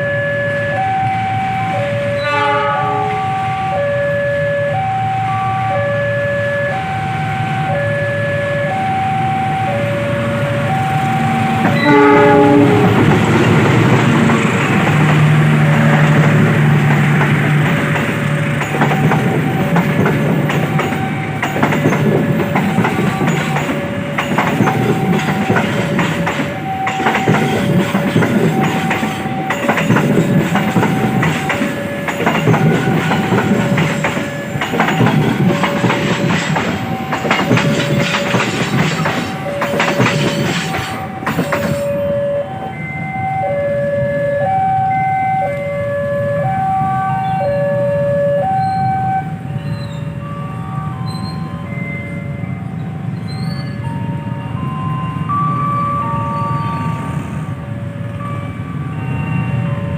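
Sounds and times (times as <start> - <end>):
diesel locomotive engine: 0.0 - 59.9
two-tone crossing alarm: 0.0 - 59.9
train horn blast: 2.2 - 3.7, 11.5 - 13.4
wheels clattering over rails: 11.6 - 42.0.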